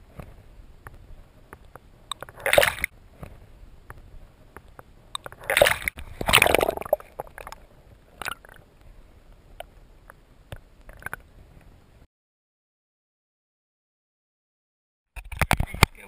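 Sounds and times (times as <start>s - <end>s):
water splashing and sloshing: 2.1s - 3.4s, 5.2s - 9.0s.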